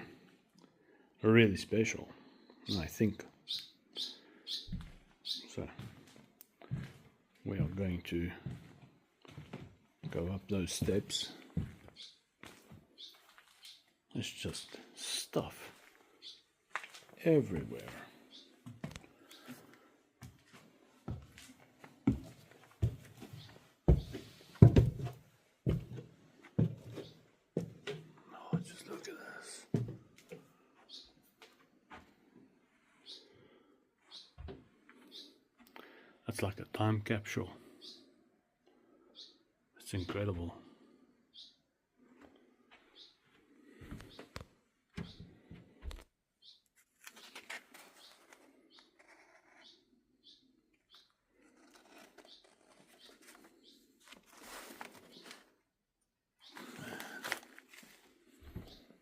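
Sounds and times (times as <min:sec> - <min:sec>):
small bird chirping: 0:02.3 - 0:05.7, 0:11.2 - 0:12.3, 0:12.9 - 0:14.0, 0:16.1 - 0:16.5, 0:17.8 - 0:18.6, 0:30.8 - 0:31.2, 0:33.0 - 0:34.4, 0:35.0 - 0:35.4, 0:37.7 - 0:38.1, 0:39.0 - 0:39.4, 0:41.3 - 0:41.6, 0:42.8 - 0:44.4, 0:46.4 - 0:54.0.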